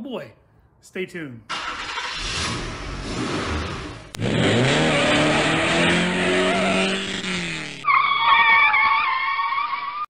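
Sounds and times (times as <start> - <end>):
car engine revving: 1.5 - 7.8.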